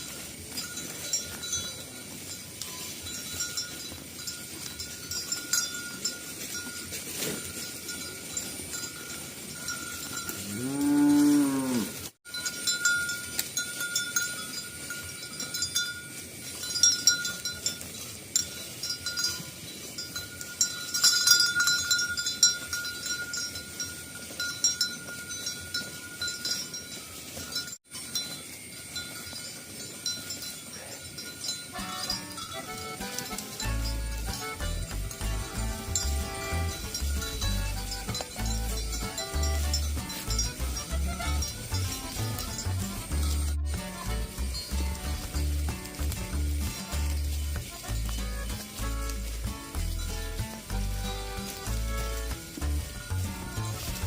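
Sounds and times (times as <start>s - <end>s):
cowbells clinking: 0.0s - 54.0s
cow mooing: 10.4s - 12.1s.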